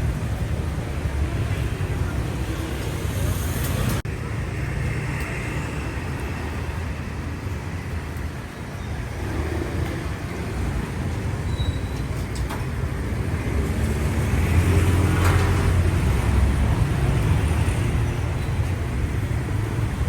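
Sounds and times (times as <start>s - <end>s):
road and traffic noise: 0.0s - 20.0s.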